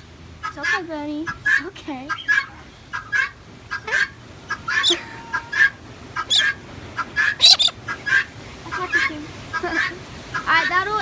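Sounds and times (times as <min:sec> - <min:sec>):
chickens clucking: 0:00.4 - 0:11.0
shrill bird calls: 0:04.5 - 0:06.6, 0:07.2 - 0:08.2.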